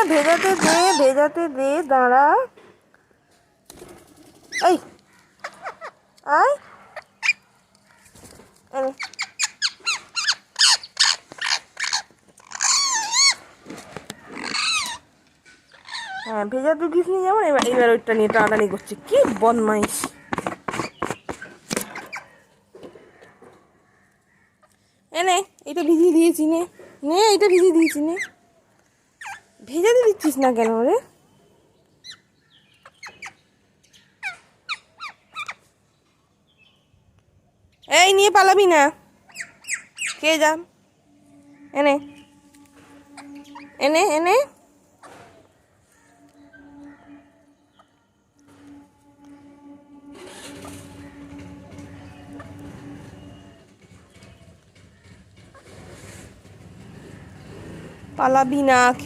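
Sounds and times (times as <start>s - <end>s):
parakeets screeching: 0.0s - 1.4s, 4.5s - 8.1s, 8.8s - 13.5s, 14.1s - 16.8s, 17.6s - 22.4s, 29.2s - 29.5s, 32.0s - 33.4s, 34.0s - 35.6s, 39.2s - 59.0s
parakeet calls: 9.0s - 13.4s, 14.2s - 15.1s, 15.7s - 16.3s, 32.8s - 35.6s, 39.3s - 40.4s, 41.3s - 44.3s.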